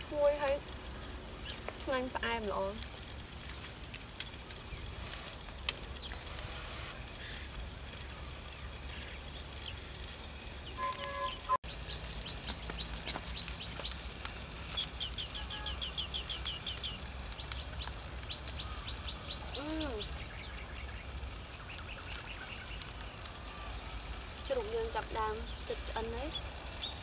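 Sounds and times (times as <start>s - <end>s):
downward-sweeping bird chirps: 10.7s - 11.6s
low rising-and-falling bird call: 10.7s - 11.6s.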